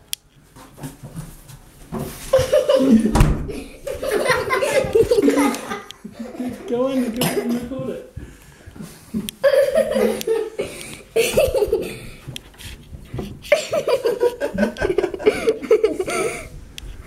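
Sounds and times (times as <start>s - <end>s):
people laughing: 2.3s - 8.0s, 9.1s - 12.1s, 13.5s - 16.5s.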